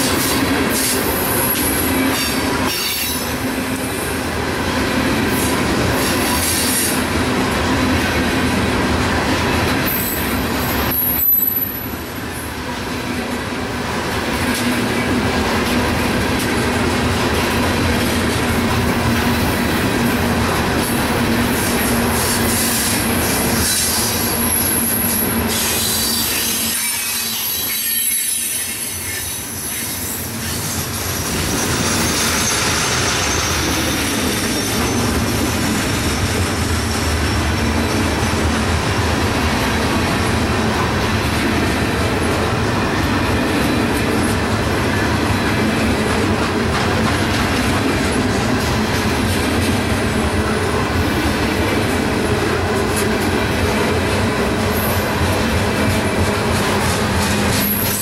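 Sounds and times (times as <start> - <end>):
freight cars rumbling on rail: 0.0 - 58.0
high-pitched wheel squeals: 23.6 - 36.0.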